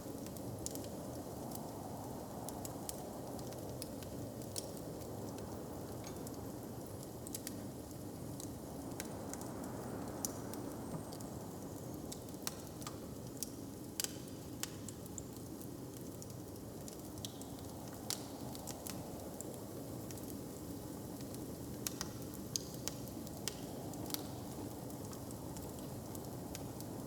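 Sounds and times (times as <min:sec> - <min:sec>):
wood fire crackling and popping: 0:12.1 - 0:27.0.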